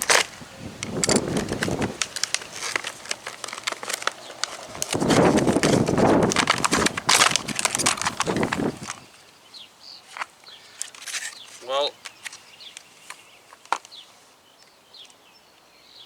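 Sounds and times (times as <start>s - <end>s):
sharp clicks and knocks: 0.0s - 9.0s
scraping rustling: 0.0s - 9.1s, 10.1s - 14.1s.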